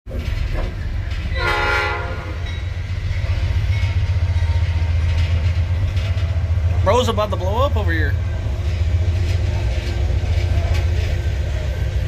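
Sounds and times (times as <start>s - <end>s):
low rumble of train: 0.1s - 12.0s
train horn blast: 1.3s - 2.4s.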